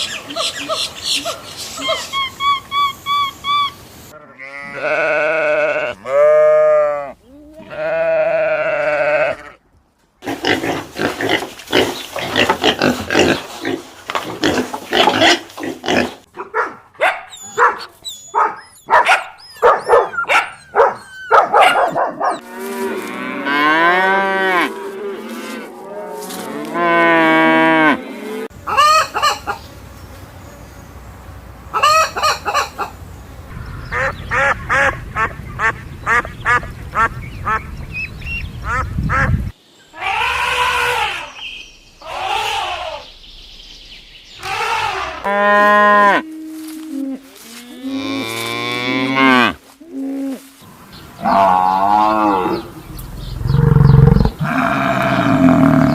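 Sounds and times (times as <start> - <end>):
livestock and fowl calls: 0.0 - 9.6, 17.0 - 29.8, 31.7 - 37.8, 38.6 - 43.2, 44.4 - 55.9
sheep bleat: 4.2 - 9.6, 53.8 - 55.9.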